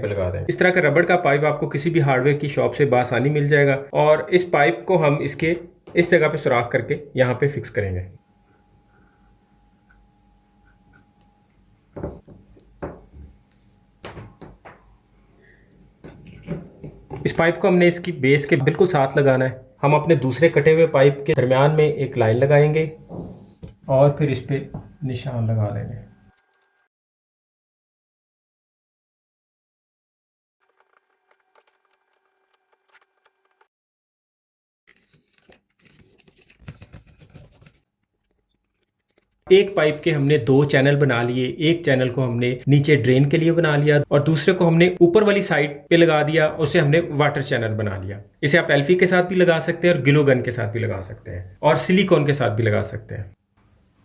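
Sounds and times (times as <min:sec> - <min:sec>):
hard objects knocking and clattering: 0:12.0 - 0:13.2.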